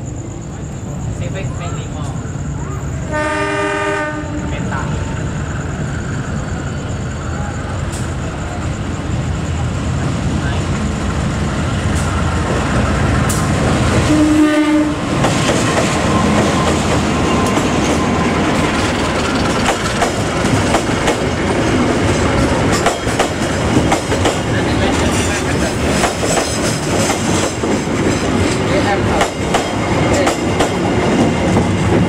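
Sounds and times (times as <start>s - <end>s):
train horn blast: 3.1s - 4.8s, 14.0s - 15.1s
train wheels clattering over rail joints: 15.1s - 32.0s.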